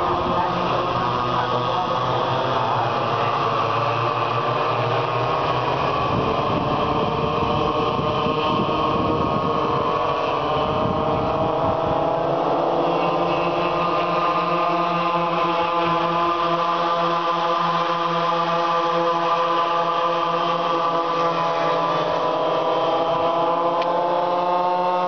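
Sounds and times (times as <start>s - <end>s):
high-revving racing engines: 0.0s - 25.0s.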